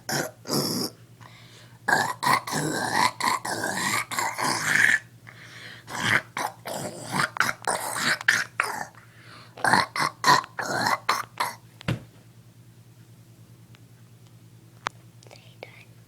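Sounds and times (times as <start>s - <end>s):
boy making throat noises: 0.0s - 1.0s, 1.9s - 5.1s, 5.9s - 9.0s, 9.6s - 11.6s.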